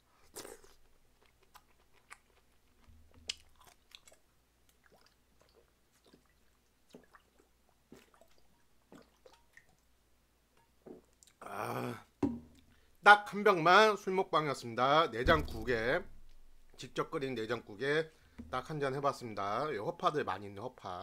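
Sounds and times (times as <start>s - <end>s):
man chewing: 0.0s - 9.7s.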